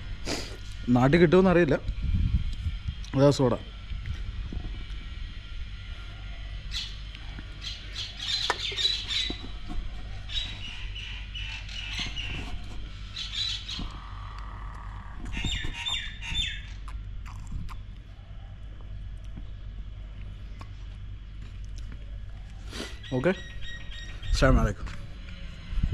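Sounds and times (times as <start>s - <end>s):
steady low hum: 0.0s - 25.9s
birds squawking: 6.0s - 16.8s, 22.8s - 24.8s.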